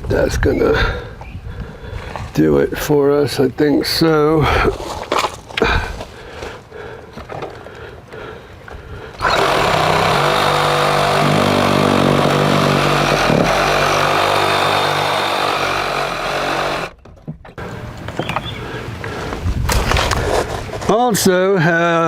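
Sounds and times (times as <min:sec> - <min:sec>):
handheld power tool running: 0:09.2 - 0:17.0.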